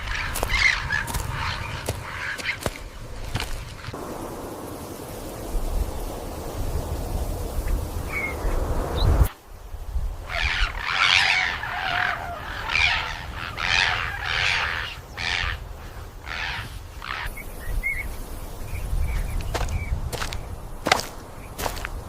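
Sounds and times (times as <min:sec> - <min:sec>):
harsh squawking animal calls: 0:00.0 - 0:02.9, 0:10.3 - 0:17.4.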